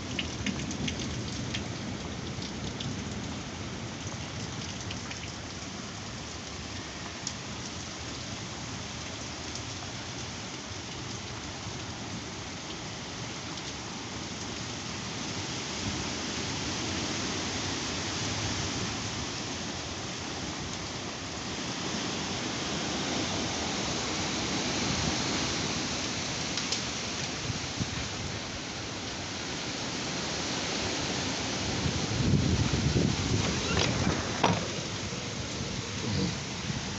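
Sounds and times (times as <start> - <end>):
drops or hail ticking on surface: 0.0 - 3.4
heavy rain pouring: 0.0 - 36.9.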